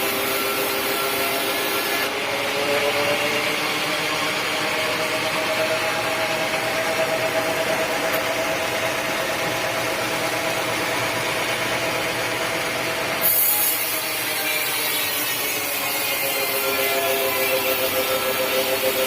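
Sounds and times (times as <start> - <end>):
power saw cutting wood: 0.0 - 8.8, 13.1 - 19.0.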